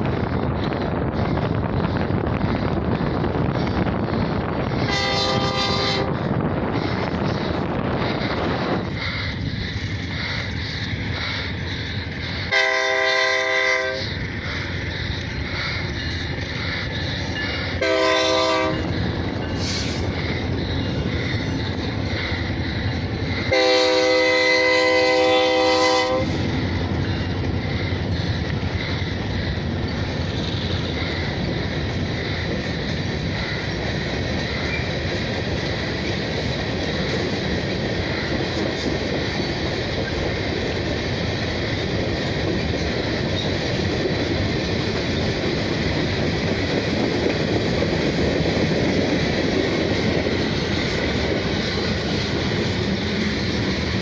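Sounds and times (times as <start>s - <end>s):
train rumbling past: 0.0s - 54.0s
locomotive air horn: 4.9s - 6.2s, 12.5s - 14.1s, 17.8s - 18.9s, 23.5s - 26.4s
wheels clattering on rails: 6.2s - 54.0s.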